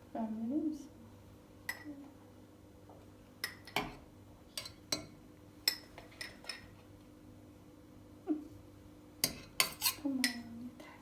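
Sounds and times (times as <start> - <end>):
cutlery and dishes clinking: 9.2 - 10.5.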